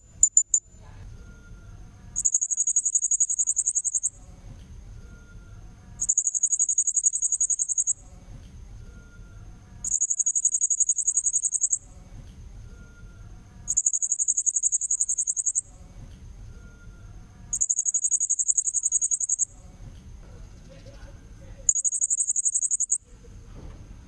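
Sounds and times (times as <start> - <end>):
parrot high-pitched pulsed chirping: 0.0 - 0.7, 2.2 - 4.2, 6.0 - 8.0, 9.8 - 11.9, 13.6 - 15.7, 17.5 - 19.6, 21.7 - 23.0
faint low rumble: 3.7 - 10.0, 11.7 - 13.9, 14.8 - 17.8.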